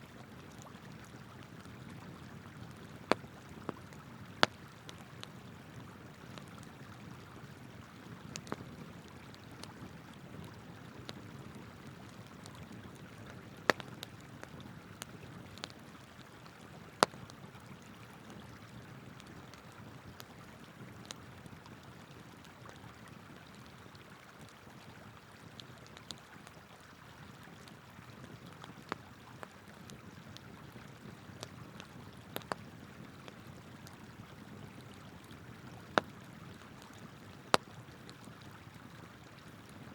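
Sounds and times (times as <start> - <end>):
wood fire crackling and popping: 0.5 - 7.1, 8.1 - 17.7, 18.3 - 24.5, 28.2 - 32.7.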